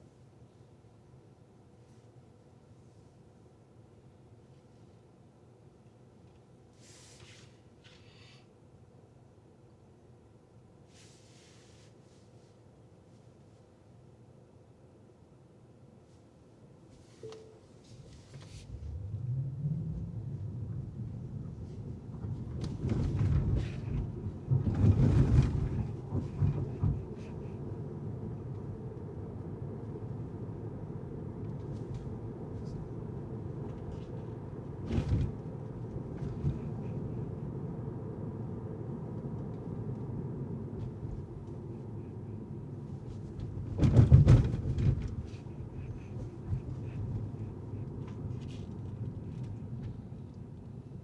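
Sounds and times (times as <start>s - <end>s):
car road and engine noise: 18.0s - 51.0s
rumbling thumps: 18.6s - 27.6s.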